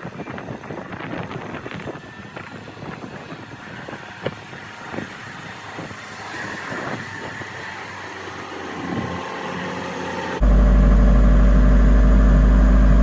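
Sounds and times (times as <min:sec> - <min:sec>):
engine running: 0:00.8 - 0:13.0
steady whine: 0:10.4 - 0:13.0.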